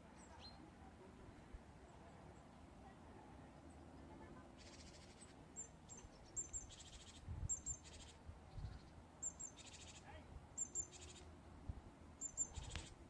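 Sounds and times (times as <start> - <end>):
buzzy bird trills: 4.6 - 11.3, 12.2 - 13.0
high bird chirps: 4.6 - 11.3, 12.2 - 13.0.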